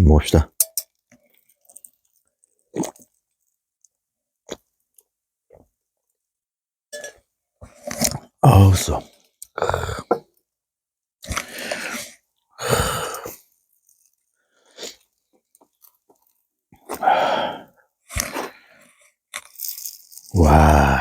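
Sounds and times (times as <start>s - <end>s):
man exhaling breathily: 17.0s - 17.7s, 20.4s - 21.0s.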